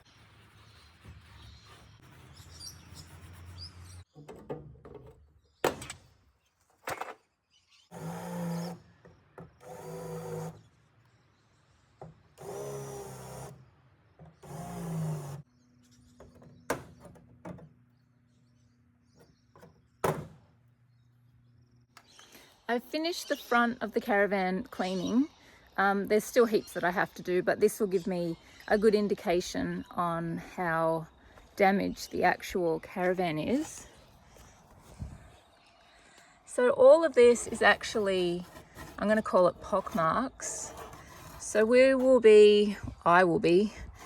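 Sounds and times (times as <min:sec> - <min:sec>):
power drill bursts: 0:09.6 - 0:10.6.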